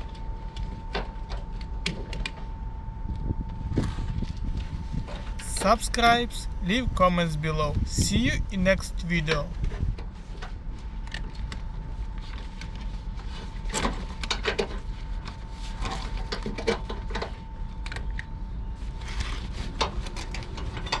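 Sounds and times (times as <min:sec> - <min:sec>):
faint high tone: 0:05.3 - 0:09.8.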